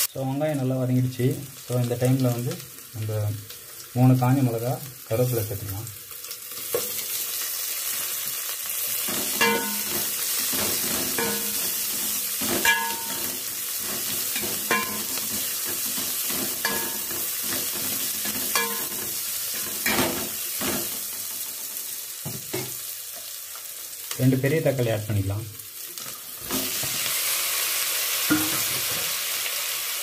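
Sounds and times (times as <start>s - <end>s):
food sizzling in hot oil: 0.0s - 30.0s
metal ladle knocking against pot: 9.4s - 9.9s, 12.6s - 13.2s, 28.3s - 28.8s.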